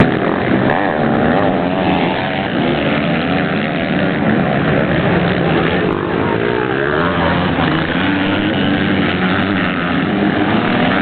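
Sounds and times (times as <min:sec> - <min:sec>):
motocross bike engines revving: 0:00.0 - 0:11.0.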